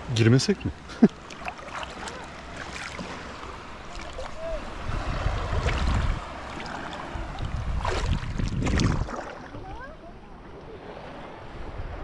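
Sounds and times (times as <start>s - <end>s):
water at the shore: 0.0s - 12.0s
low wind rumble: 3.5s - 10.4s
wind on microphone: 4.4s - 9.9s, 11.3s - 12.0s.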